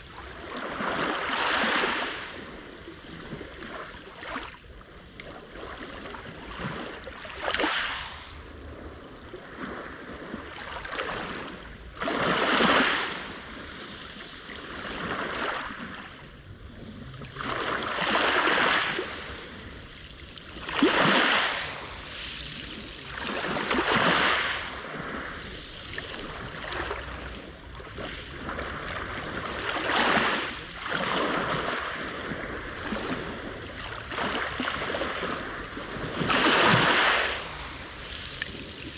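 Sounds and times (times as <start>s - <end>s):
waves breaking on shore: 0.0s - 38.9s.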